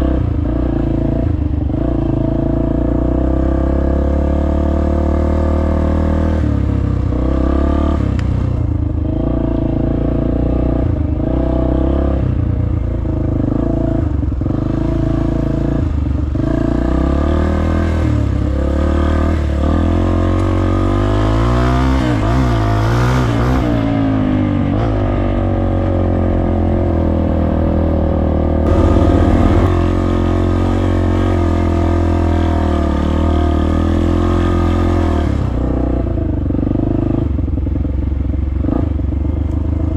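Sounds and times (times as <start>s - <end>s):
dirt bike engine revving: 26.9s - 35.4s.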